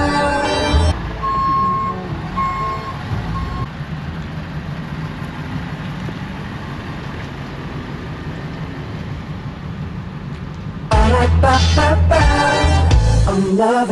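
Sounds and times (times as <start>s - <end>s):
truck reversing alarm beeping: 0.0s - 3.7s
truck engine running: 0.0s - 13.4s.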